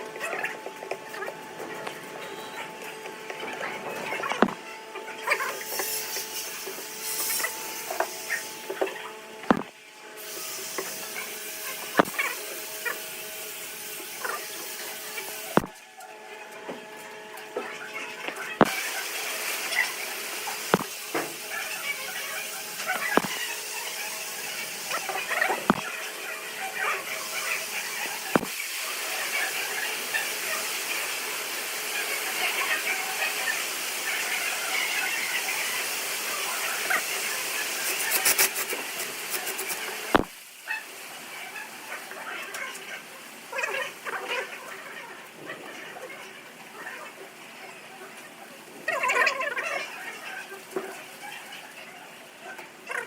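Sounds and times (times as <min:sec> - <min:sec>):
workshop machine humming: 0:00.0 - 0:32.8, 0:39.2 - 0:40.3
clicks: 0:04.3 - 0:04.6, 0:09.5 - 0:09.7, 0:12.0 - 0:12.2, 0:15.6 - 0:15.8, 0:23.1 - 0:23.4
sharp knocks: 0:04.4 - 0:04.6, 0:09.5 - 0:09.7
tool hissing on spinning wood: 0:05.2 - 0:15.7, 0:18.6 - 0:40.3
scratchy noise: 0:12.0 - 0:12.4, 0:22.8 - 0:23.6.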